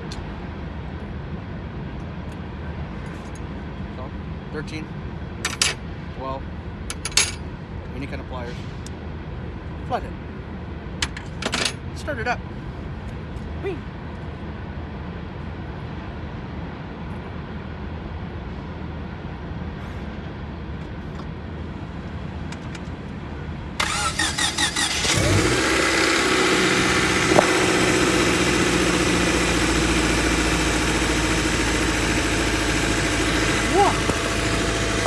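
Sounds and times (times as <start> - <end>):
starter cranking engine: 5.5 - 5.8, 23.8 - 35.0
car engine idling: 21.6 - 35.0.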